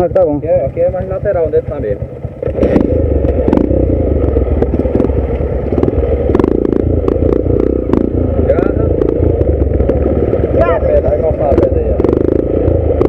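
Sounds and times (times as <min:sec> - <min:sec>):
dirt bike engine at low speed: 0:00.0 - 0:13.0.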